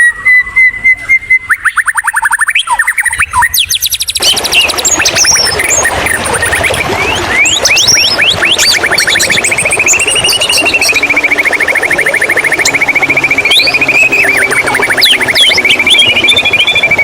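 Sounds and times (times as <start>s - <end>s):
songbird whistling and trilling: 0.0s - 17.0s
running water rushing: 4.0s - 17.0s.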